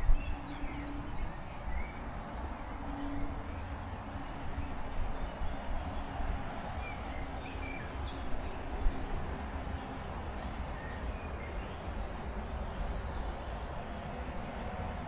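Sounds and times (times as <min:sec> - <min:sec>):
wind rumble on microphone: 0:00.0 - 0:10.2.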